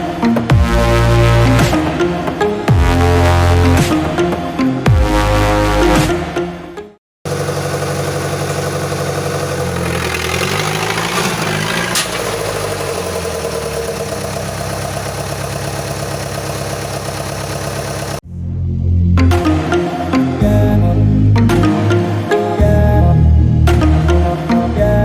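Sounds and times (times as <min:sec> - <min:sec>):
tractor engine idling: 0:07.3 - 0:18.2.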